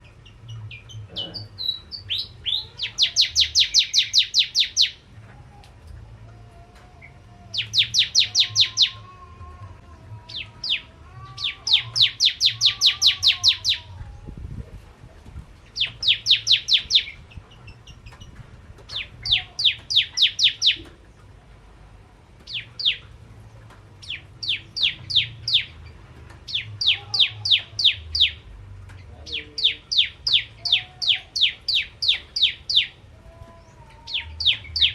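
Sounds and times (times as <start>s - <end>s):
bird calling in metallic chips: 7.6s - 9.0s.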